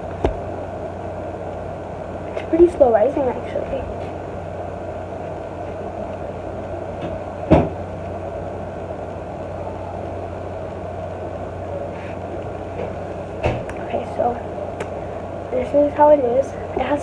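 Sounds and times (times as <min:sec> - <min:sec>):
background hum: 0:00.0 - 0:17.0
short thump: 0:00.2 - 0:00.5.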